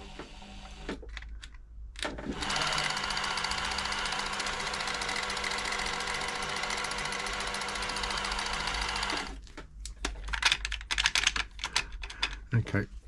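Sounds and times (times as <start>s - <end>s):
sewing machine clicks: 2.2s - 9.4s.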